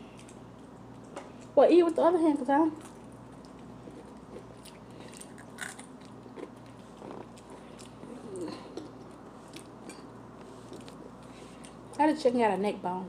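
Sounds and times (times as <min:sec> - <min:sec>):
person chewing fried chicken: 0:02.8 - 0:12.0
small crunches: 0:02.8 - 0:12.0.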